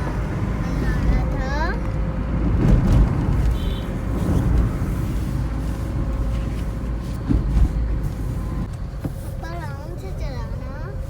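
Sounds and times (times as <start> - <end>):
vehicle rumble from on board: 0.0 - 11.0.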